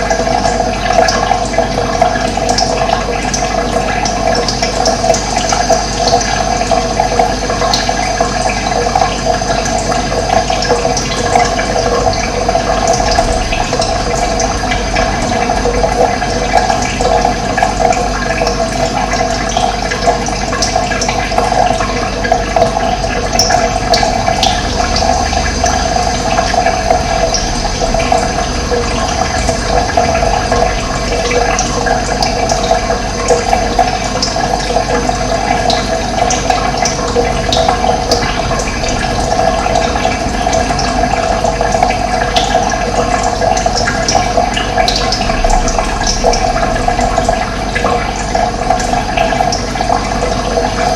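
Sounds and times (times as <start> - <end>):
running water rushing: 0.0 - 50.9.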